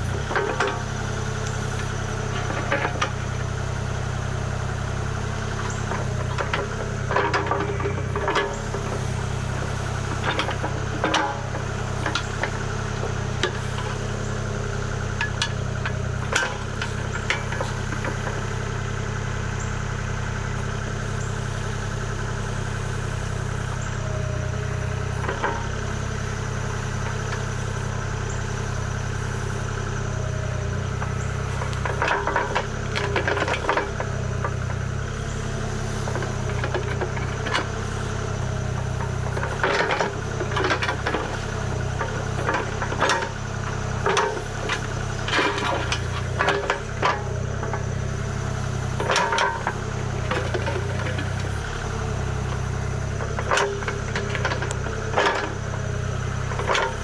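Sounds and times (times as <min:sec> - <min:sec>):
diesel engine running: 0:00.0 - 0:57.0
sharp knocks and rattles: 0:31.0 - 0:34.9.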